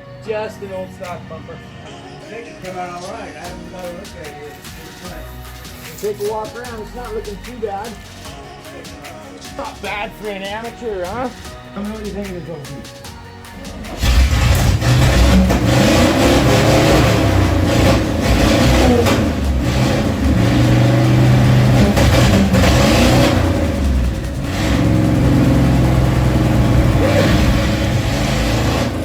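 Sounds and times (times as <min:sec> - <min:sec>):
truck engine revving: 0:13.5 - 0:29.0.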